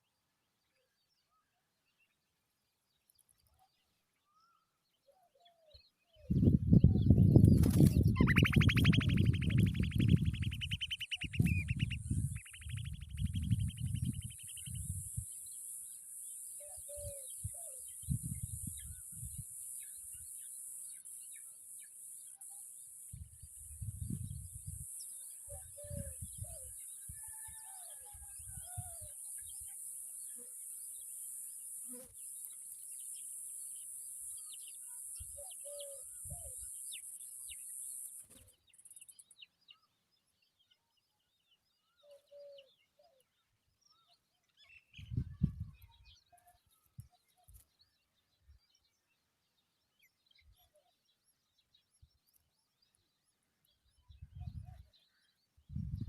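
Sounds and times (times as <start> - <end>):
fast pulsed rasping call: 8.2 - 14.7.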